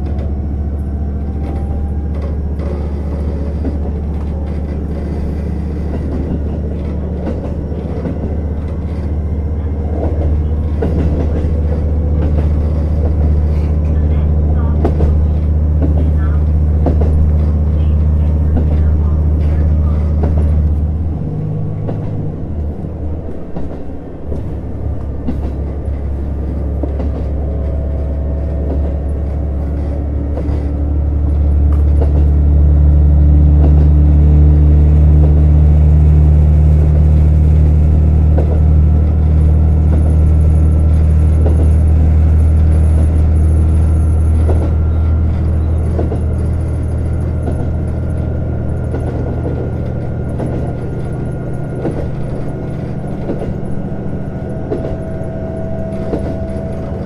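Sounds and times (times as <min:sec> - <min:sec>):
diesel railcar engine hum: 0:00.0 - 0:57.0.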